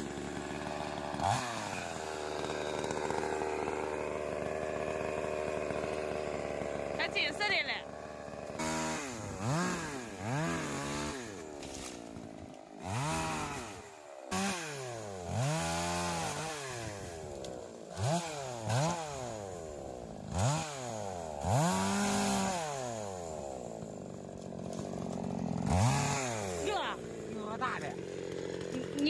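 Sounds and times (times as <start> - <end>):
chainsaw revving: 0.0 - 29.0.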